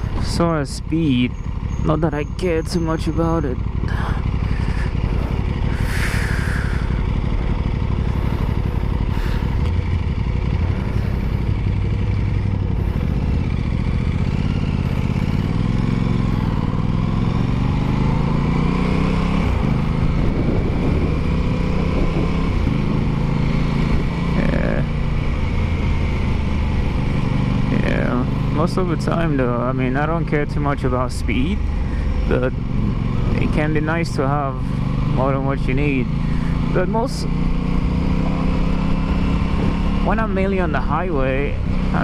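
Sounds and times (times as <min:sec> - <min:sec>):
motorcycle engine running: 0:00.0 - 0:42.0
wind on microphone: 0:19.6 - 0:23.2.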